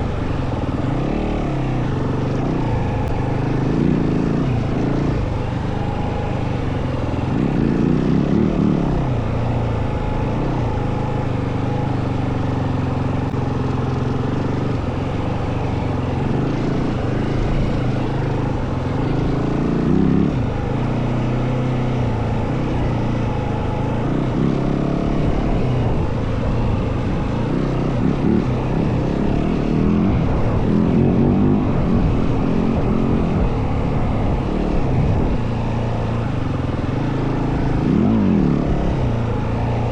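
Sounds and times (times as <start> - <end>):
dirt bike engine revving: 0.9 - 11.9, 12.6 - 39.9.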